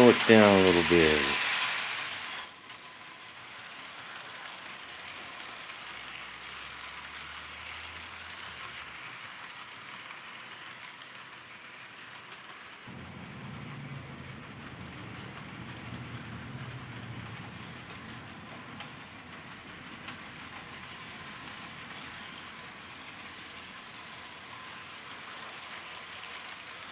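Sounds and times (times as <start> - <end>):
model train wheels rolling: 0.0 - 26.9
low motor hum: 12.9 - 23.8.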